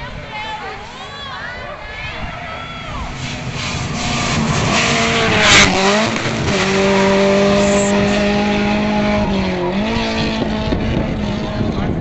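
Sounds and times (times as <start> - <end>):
loud rush of noise: 0.1 - 10.0
rally car engine at high revs: 3.1 - 12.0.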